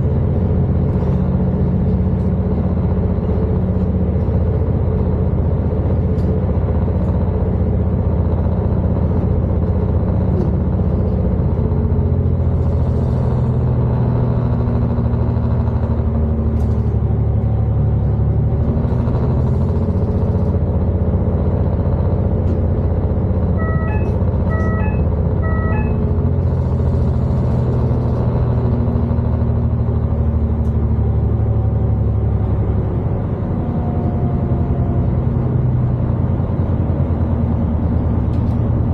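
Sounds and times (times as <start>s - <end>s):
train engine rumbling: 0.0s - 38.9s
electronic beeps: 23.6s - 26.1s.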